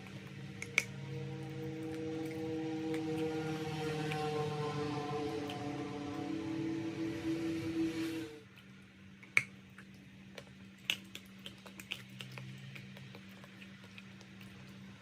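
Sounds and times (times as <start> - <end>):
music: 0.3 - 8.5.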